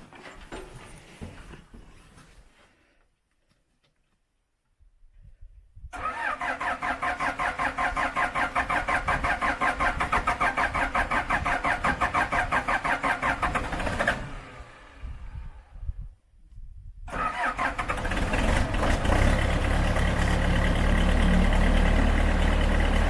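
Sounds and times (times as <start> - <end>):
engine cranking on starter: 6.0 - 15.0, 17.1 - 23.0.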